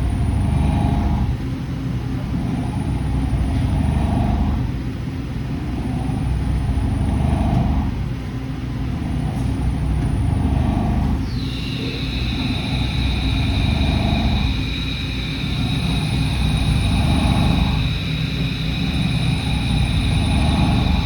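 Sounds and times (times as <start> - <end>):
milling machine hum: 0.0 - 21.0
thin high whine: 11.2 - 21.0.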